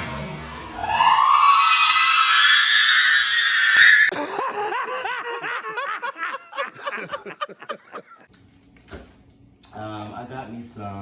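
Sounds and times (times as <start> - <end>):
person laughing: 4.1 - 8.3.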